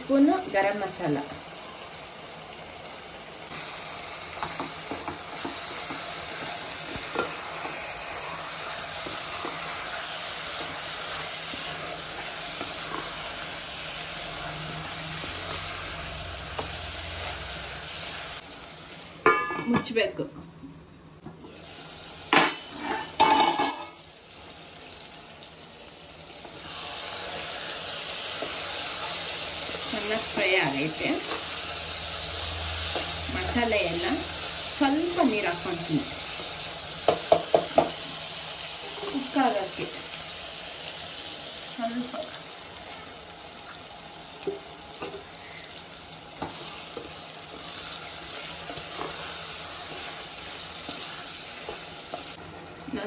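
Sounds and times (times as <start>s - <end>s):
chicken sizzling in oil: 0.0s - 20.1s, 21.4s - 53.0s
wooden spatula stirring: 46.3s - 52.4s.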